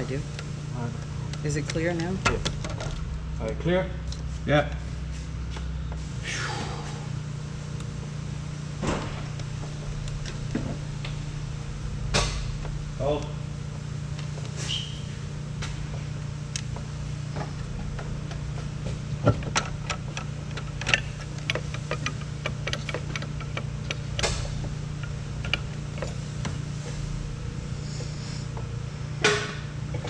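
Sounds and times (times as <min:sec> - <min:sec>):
steady low hum: 0:00.0 - 0:30.0
metal clicks and knocks: 0:19.2 - 0:26.6.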